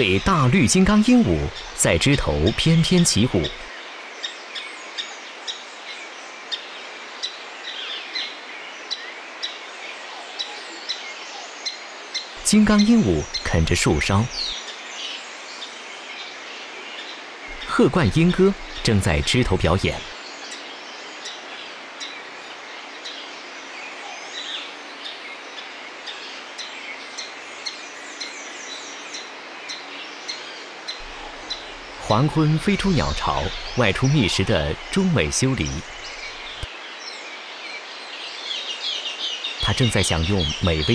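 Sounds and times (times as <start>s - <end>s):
sliding bird calls: 0.0s - 3.7s, 17.5s - 20.1s, 31.0s - 36.7s
outdoor ambient hiss: 0.0s - 40.9s.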